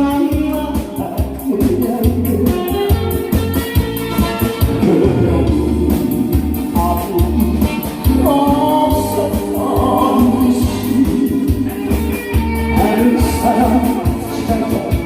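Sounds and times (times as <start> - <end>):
instrumental accompaniment with beat: 0.0 - 15.0
person singing long notes: 4.7 - 11.9, 12.7 - 15.0.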